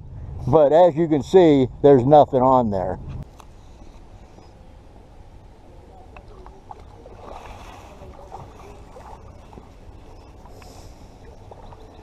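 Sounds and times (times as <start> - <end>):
steady low rumble: 0.0 - 12.0
water lapping and splashing: 6.1 - 12.0.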